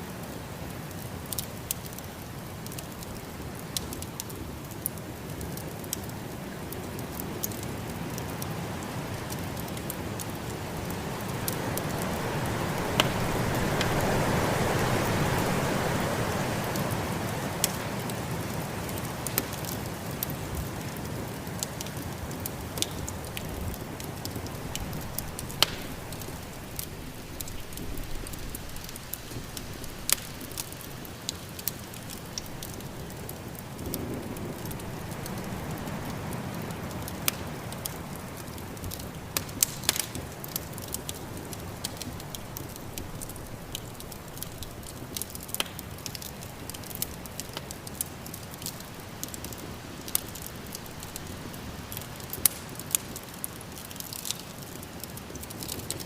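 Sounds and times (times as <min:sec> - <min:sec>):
wood fire crackling and popping: 0:00.0 - 0:56.0
snowstorm wind rushing: 0:10.9 - 0:17.5.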